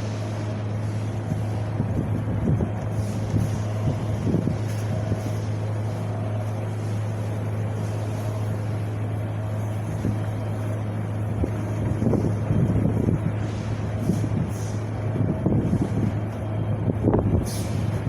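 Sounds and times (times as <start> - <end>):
wind buffeting microphone: 0.6 - 6.4, 9.4 - 18.0.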